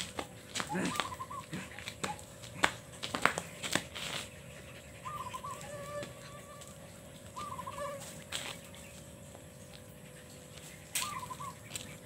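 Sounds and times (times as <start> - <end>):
bird wavering held calls: 0.6 - 2.3, 4.0 - 9.1, 9.9 - 12.0.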